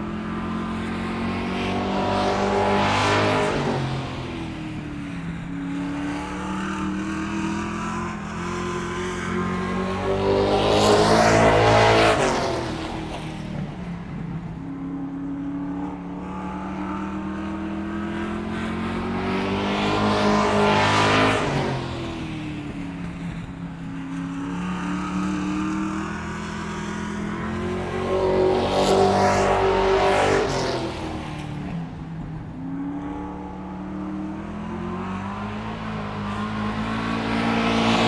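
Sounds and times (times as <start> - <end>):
car engine passing by: 0.3 - 14.5, 15.3 - 38.0.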